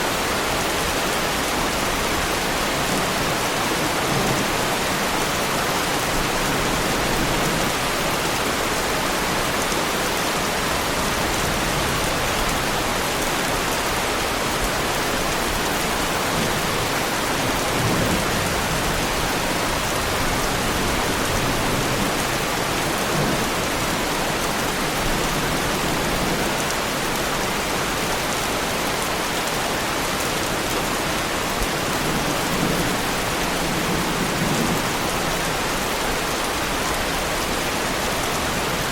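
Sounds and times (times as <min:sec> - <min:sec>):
heavy rain on a car: 0:00.0 - 0:38.9.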